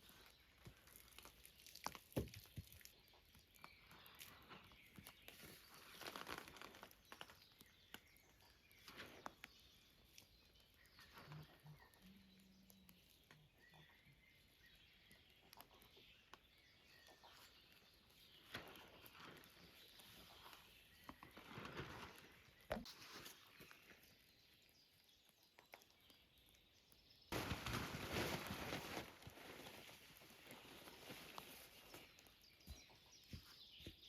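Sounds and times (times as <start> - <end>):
soft rustles: 0.0 - 12.0, 17.1 - 24.2, 27.3 - 34.0.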